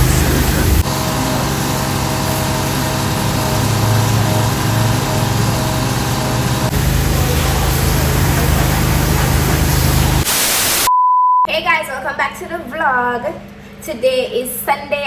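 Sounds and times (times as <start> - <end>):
motor running steadily: 0.0 - 10.3.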